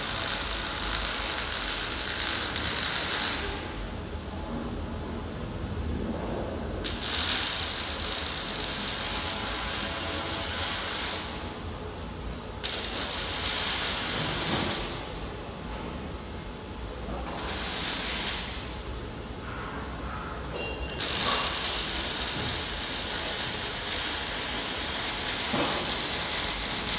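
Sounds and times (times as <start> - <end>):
steady mechanical clatter: 21.1 - 26.9.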